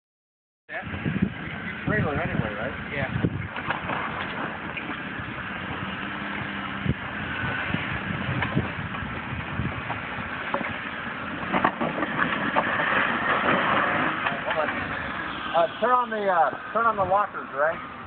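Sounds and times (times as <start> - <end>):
engine running at low speed: 0.7 - 18.0
knocks and clunks: 9.8 - 15.0.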